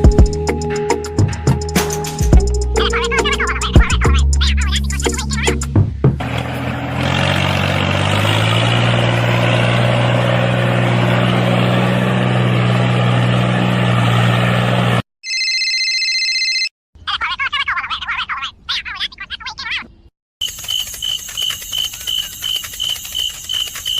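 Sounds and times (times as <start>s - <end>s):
small motor running: 20.4s - 23.9s.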